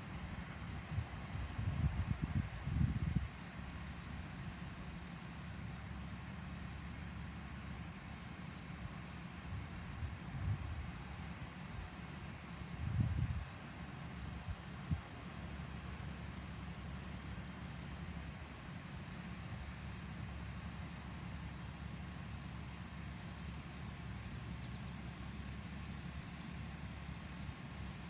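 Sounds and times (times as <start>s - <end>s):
truck diesel engine idling: 13.9s - 28.0s.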